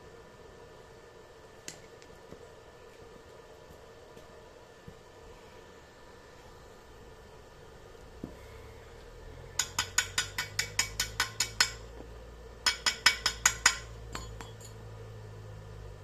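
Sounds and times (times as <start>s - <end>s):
hammer tapping metal: 9.6s - 12.0s, 12.6s - 14.8s.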